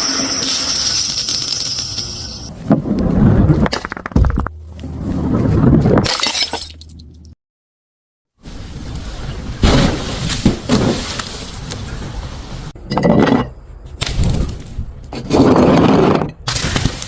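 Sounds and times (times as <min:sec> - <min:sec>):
glass bottle shattering: 0:00.0 - 0:02.5.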